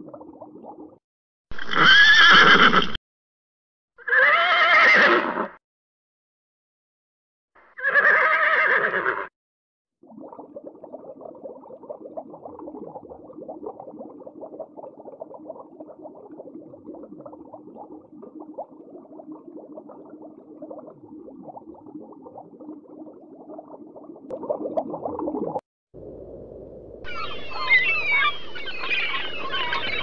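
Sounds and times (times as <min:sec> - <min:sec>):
underwater crackling and bubbling: 0:00.0 - 0:01.0, 0:10.0 - 0:25.6
faint steady hum: 0:26.0 - 0:27.0.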